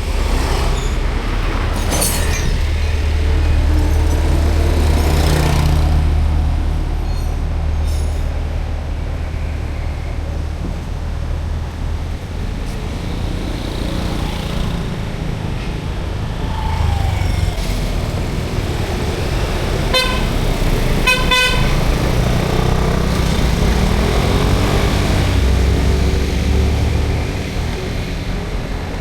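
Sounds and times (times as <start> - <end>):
street traffic rumble: 0.0 - 29.0
engine rising in pitch: 16.3 - 21.0
vehicle horn honking: 19.9 - 21.9.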